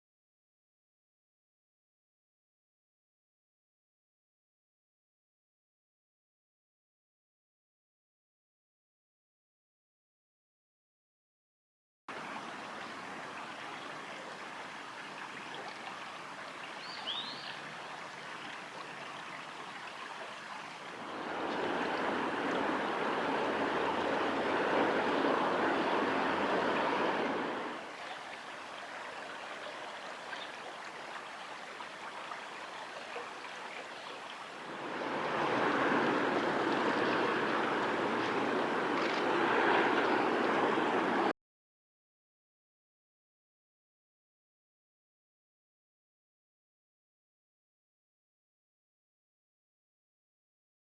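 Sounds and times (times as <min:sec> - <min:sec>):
river water rushing: 0:12.1 - 0:41.3.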